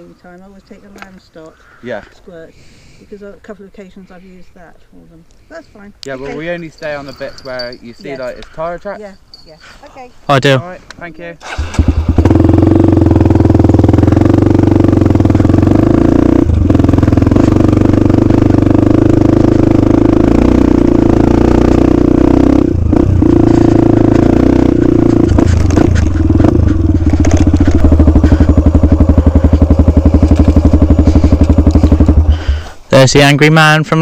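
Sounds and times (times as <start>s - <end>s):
dirt bike engine running: 11.6s - 32.8s.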